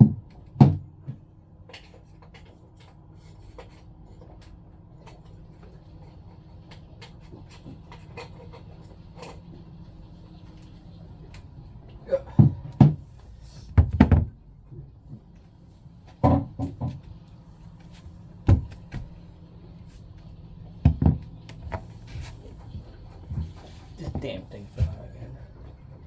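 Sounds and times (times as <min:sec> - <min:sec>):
plastic parts knocking: 0:13.7 - 0:14.4, 0:16.2 - 0:17.2, 0:18.4 - 0:19.2, 0:20.8 - 0:21.9.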